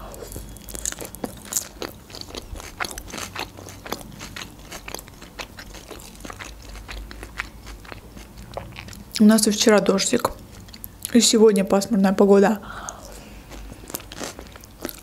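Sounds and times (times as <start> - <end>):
crisp chewing crunches: 0.2 - 9.2, 13.5 - 15.0.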